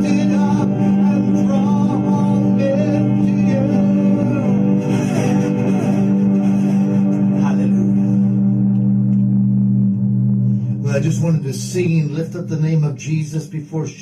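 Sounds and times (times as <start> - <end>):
person singing: 0.0 - 8.6
sustained chords: 0.0 - 13.9.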